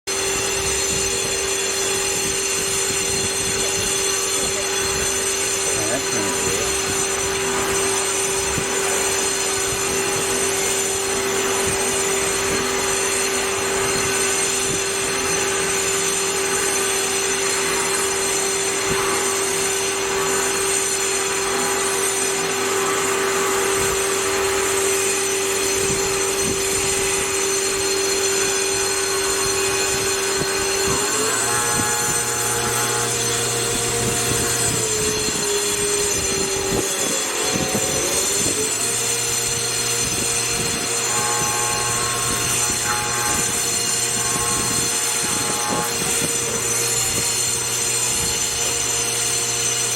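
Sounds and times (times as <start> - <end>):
machining center whine: 0.1 - 49.9.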